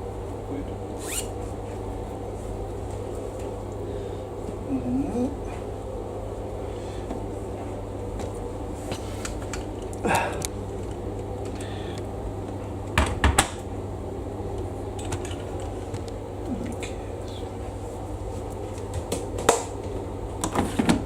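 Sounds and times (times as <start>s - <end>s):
low hum: 0.0s - 21.0s
clattering knocks and clicks: 15.0s - 16.2s.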